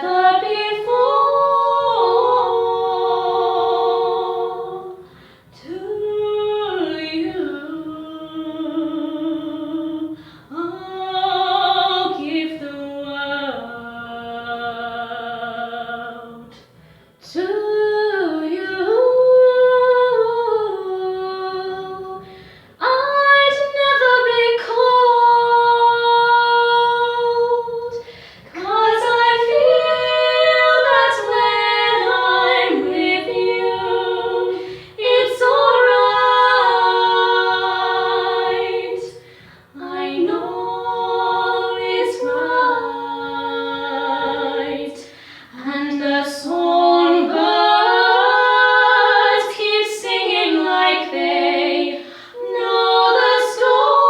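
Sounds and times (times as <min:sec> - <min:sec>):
women singing a cappella: 0:00.0 - 0:54.0
singers breathing: 0:05.0 - 0:05.6, 0:22.2 - 0:22.8, 0:28.0 - 0:28.6, 0:34.5 - 0:35.0, 0:39.2 - 0:39.8, 0:45.0 - 0:45.6, 0:52.0 - 0:52.4.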